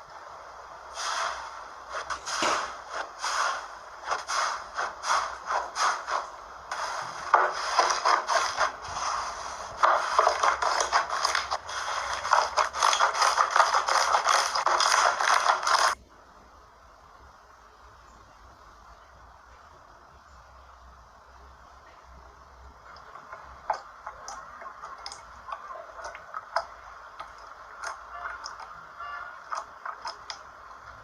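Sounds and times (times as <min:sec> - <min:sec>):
slime crackling and popping: 0:09.8 - 0:16.0.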